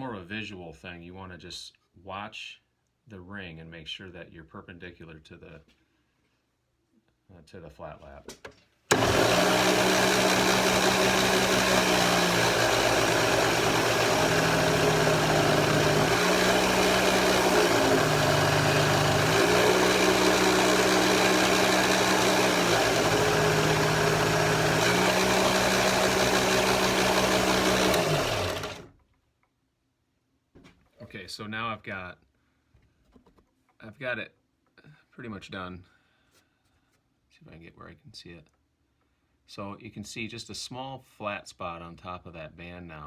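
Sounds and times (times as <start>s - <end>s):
flat lap motor humming: 8.9s - 28.9s.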